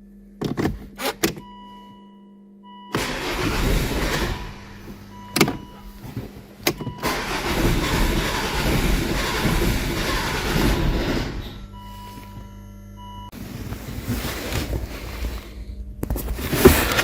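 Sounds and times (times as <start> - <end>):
engine cranking on starter motor: 2.9 - 11.9.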